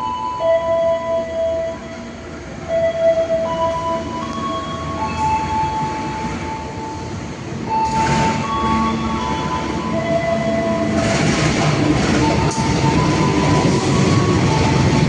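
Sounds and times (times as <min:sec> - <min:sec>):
train rolling on steel wheels: 0:00.0 - 0:15.0
wheels and brakes squealing: 0:07.7 - 0:15.0.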